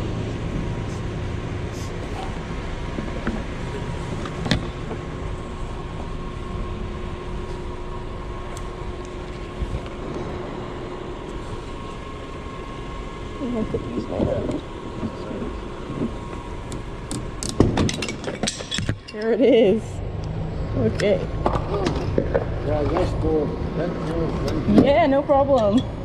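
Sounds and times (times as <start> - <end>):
faint steady hum: 0.0 - 26.0
vehicle rumble: 0.0 - 26.0.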